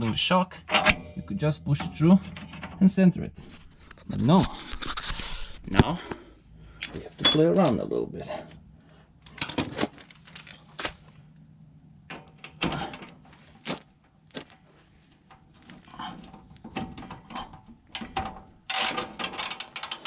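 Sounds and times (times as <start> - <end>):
metal tools clinking and knocking: 0.7 - 4.0, 6.8 - 7.8, 9.3 - 10.6.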